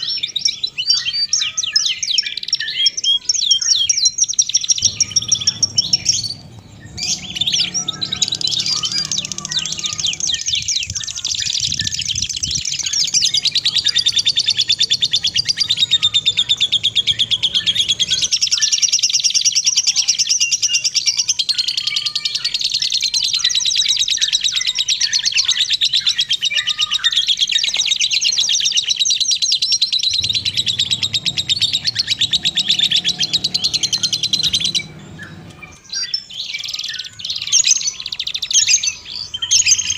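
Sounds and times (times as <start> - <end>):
songbird chattering song: 0.0 - 39.9.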